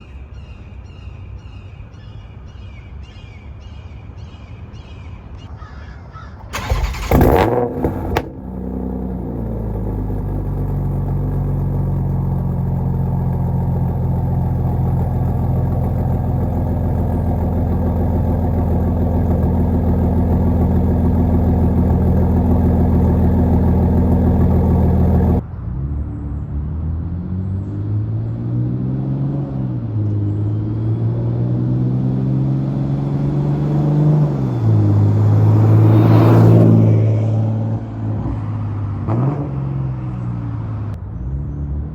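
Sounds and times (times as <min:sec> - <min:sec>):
car engine starting and idling: 0:06.4 - 0:25.4.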